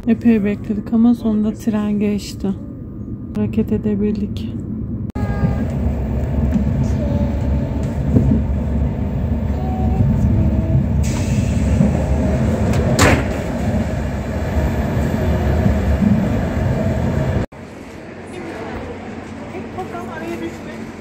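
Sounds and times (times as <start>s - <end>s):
train rumble inside carriage: 0.0s - 21.0s
sharp train clack: 9.9s - 14.0s.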